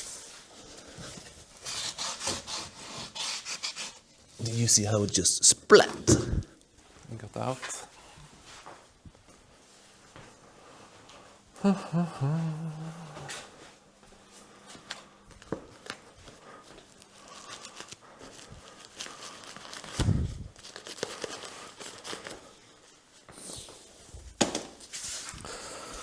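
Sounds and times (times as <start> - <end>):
paper rustling and crinkling: 14.8 - 23.3.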